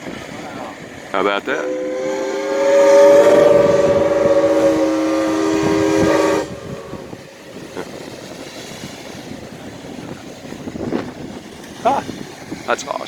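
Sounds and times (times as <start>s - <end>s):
boat horn chord: 1.2s - 7.7s.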